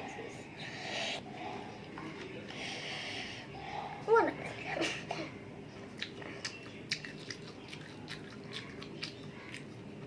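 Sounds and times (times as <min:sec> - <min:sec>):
person chewing food: 0:05.8 - 0:10.0.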